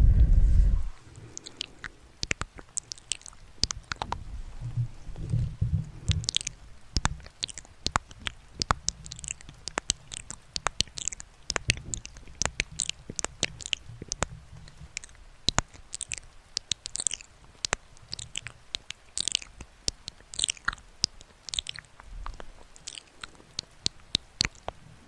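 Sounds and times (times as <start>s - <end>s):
low rumble: 0.0s - 1.3s
wet mouth clicks and smacks: 1.0s - 25.0s.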